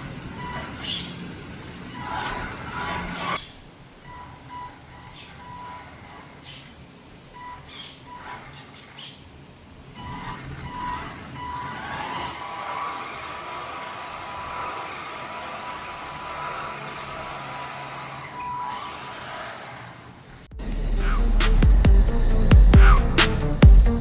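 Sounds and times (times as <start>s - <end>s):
low hum: 20.5s - 24.0s.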